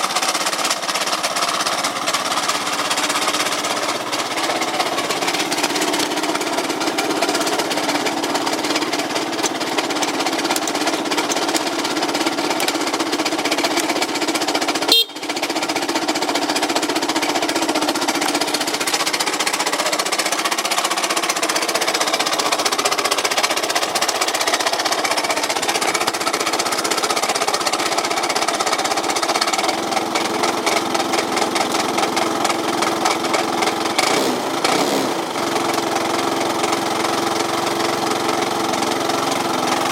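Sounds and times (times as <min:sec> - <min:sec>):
scooter engine rattling knock: 0:00.0 - 0:39.9.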